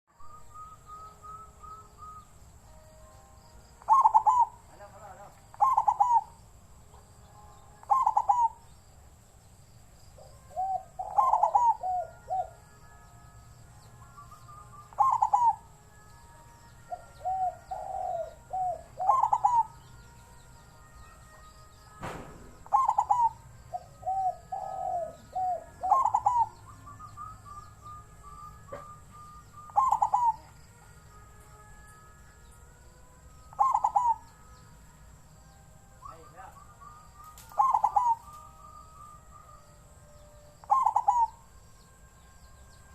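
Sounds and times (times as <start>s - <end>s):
faint bird chirps: 0.1s - 42.9s
dove cooing: 3.7s - 6.5s, 7.6s - 8.8s, 10.2s - 13.1s, 13.8s - 16.0s, 16.6s - 20.1s, 21.1s - 30.8s, 33.4s - 34.6s, 35.9s - 41.6s.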